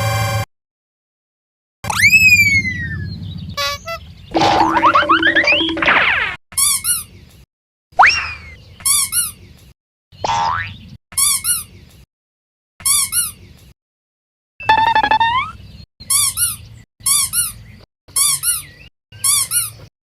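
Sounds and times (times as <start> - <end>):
squeaky toy squeaks: 1.9 - 2.8, 3.6 - 4.0, 4.9 - 7.1, 8.0 - 9.4, 11.1 - 11.7, 12.8 - 13.4, 14.6 - 19.9
wavering squeal: 1.9 - 3.0.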